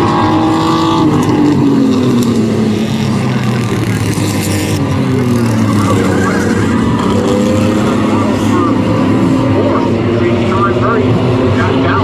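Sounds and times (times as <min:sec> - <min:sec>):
race truck engines droning: 0:00.0 - 0:12.0.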